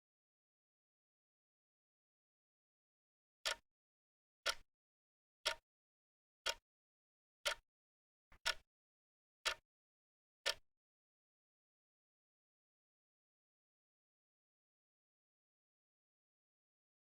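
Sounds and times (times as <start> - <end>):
clock-like ticking: 4.4 - 4.6, 5.4 - 5.6, 6.4 - 6.6, 7.4 - 7.6, 8.4 - 8.6, 9.4 - 9.6, 10.4 - 10.6.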